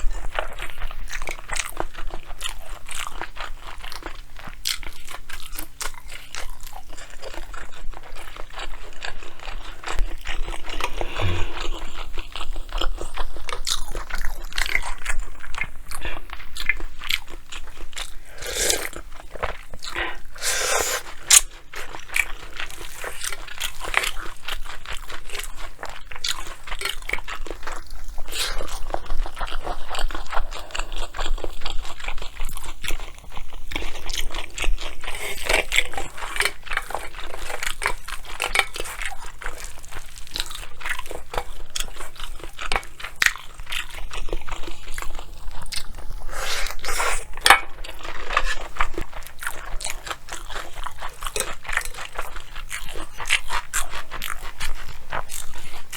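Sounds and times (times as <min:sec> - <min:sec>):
close chewing and crunching: 0:00.0 - 0:55.9.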